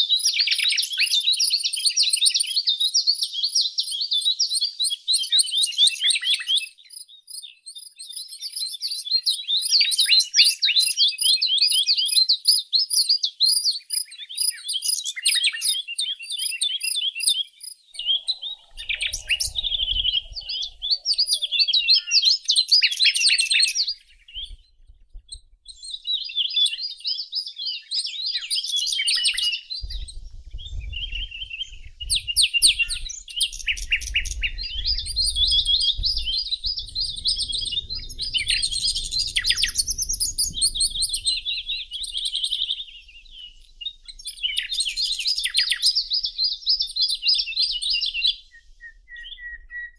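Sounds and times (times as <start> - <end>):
songbirds chirping and trilling: 0.0 - 49.9
low rumble: 18.0 - 22.0, 23.9 - 26.3, 29.6 - 45.4.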